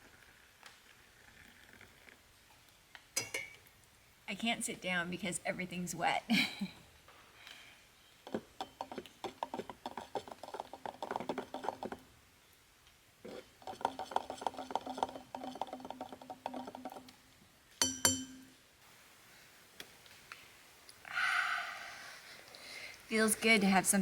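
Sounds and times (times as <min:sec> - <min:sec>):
spoon clinking in a mug: 0:03.2 - 0:03.6, 0:17.8 - 0:18.5.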